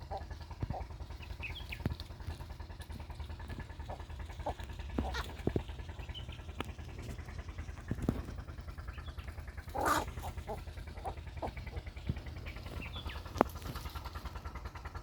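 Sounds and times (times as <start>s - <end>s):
faint animal calls: 0.0s - 1.7s, 3.8s - 5.6s, 8.8s - 13.4s
steady low hum: 0.0s - 15.0s.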